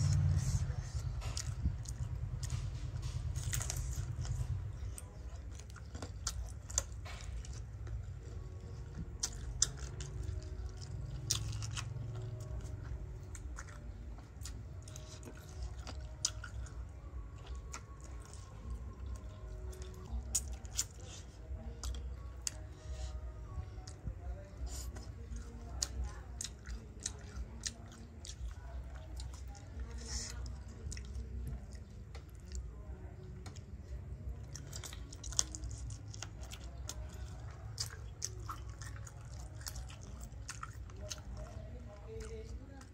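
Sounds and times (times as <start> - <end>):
crunchy chewing: 0.0 - 42.9
low steady rumble: 0.0 - 42.9.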